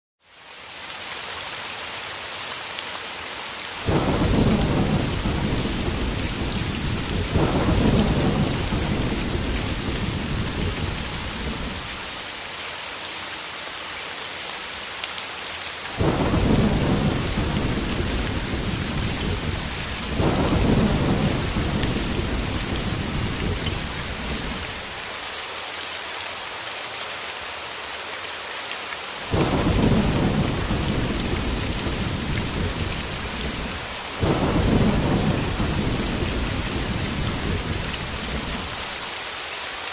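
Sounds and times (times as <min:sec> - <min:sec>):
heavy rain: 0:00.2 - 0:39.9
thunder rolling: 0:03.9 - 0:11.9, 0:16.0 - 0:24.9, 0:29.3 - 0:38.9.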